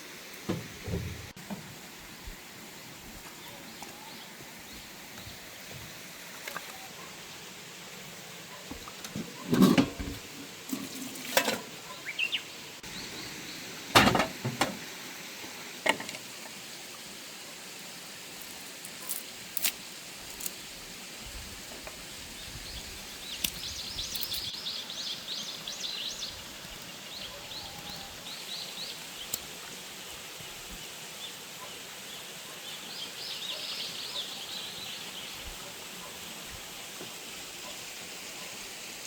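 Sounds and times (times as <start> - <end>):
small bird chirping: 22.8 - 26.4.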